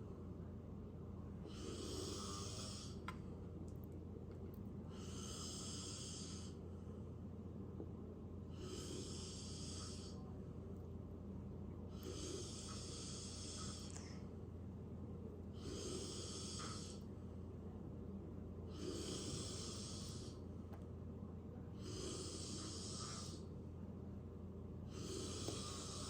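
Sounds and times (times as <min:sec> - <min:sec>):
steady low hum: 0:00.0 - 0:26.0
slow hissy breaths: 0:01.4 - 0:03.1, 0:04.8 - 0:07.1, 0:08.4 - 0:10.4, 0:11.9 - 0:14.4, 0:15.4 - 0:17.2, 0:18.7 - 0:20.5, 0:21.7 - 0:23.6, 0:24.8 - 0:26.0.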